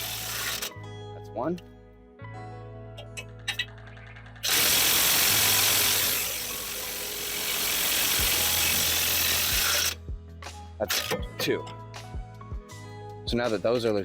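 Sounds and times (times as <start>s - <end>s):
impact wrench hammering: 4.4s - 10.0s.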